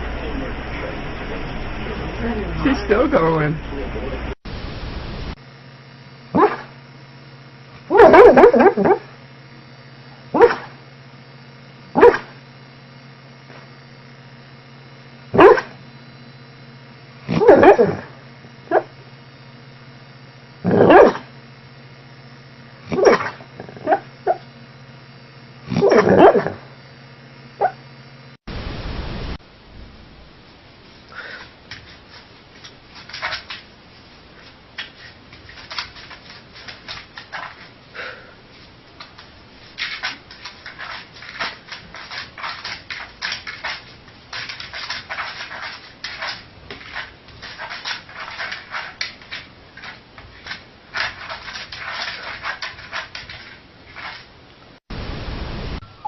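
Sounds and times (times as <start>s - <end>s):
steady hiss: 0.0s - 5.4s, 28.5s - 32.6s
steady low hum: 0.0s - 56.0s
dog barking: 6.4s - 6.7s, 7.9s - 9.1s, 10.3s - 10.7s, 12.0s - 12.4s, 15.3s - 15.8s, 17.3s - 18.1s, 18.7s - 18.9s, 20.7s - 21.3s, 22.9s - 24.4s, 25.7s - 26.6s, 27.6s - 27.8s.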